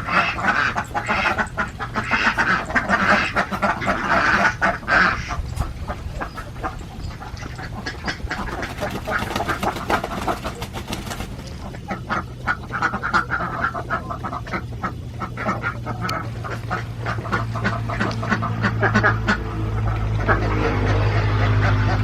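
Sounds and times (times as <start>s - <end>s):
ducks quacking: 0.0s - 22.0s
steady low hum: 0.0s - 22.0s.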